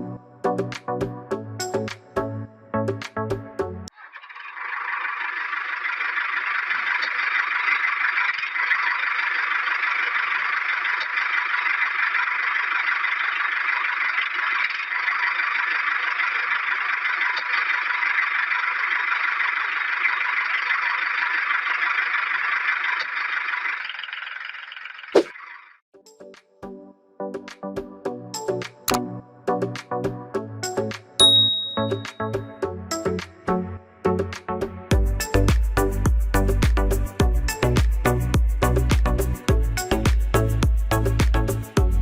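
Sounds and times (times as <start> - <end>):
small electric motor whirring: 4.3 - 25.8
sharp click: 28.6 - 29.0.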